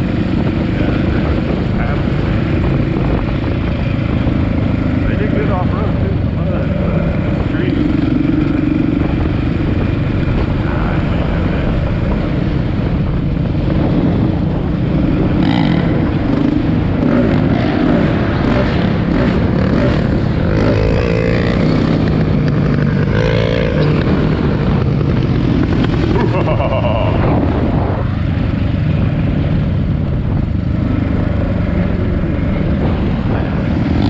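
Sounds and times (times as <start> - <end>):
dirt bike engine revving: 13.6 - 28.1, 30.8 - 34.0.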